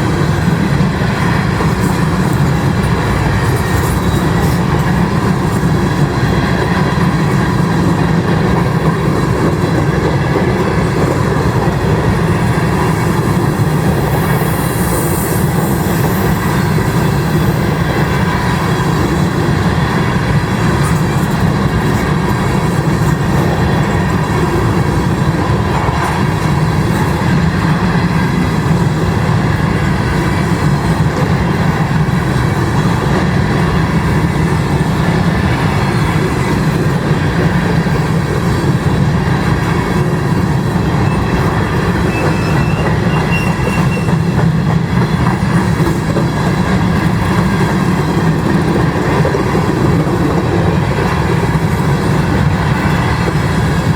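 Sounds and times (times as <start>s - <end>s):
steel wheels rumbling on rail: 0.0s - 53.9s
faint wheel squeal: 41.0s - 44.4s.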